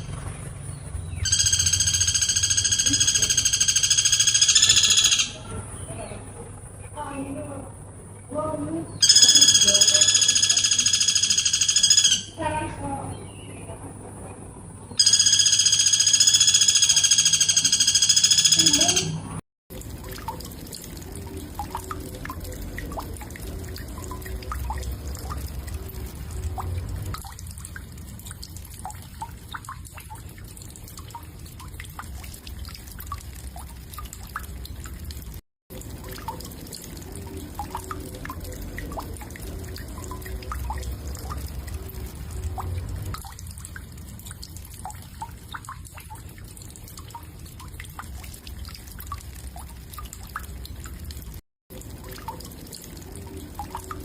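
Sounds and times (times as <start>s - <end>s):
woodpecker ticks and pips: 1.3s - 5.3s, 9.0s - 12.3s, 15.0s - 19.0s
steady low hum: 19.8s - 35.2s.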